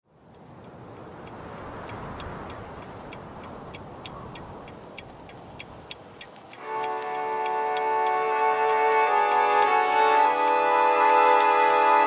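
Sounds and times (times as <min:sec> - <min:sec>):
clock ticking: 0:00.3 - 0:12.0
steady rushing noise: 0:00.4 - 0:12.0
music: 0:06.6 - 0:12.0.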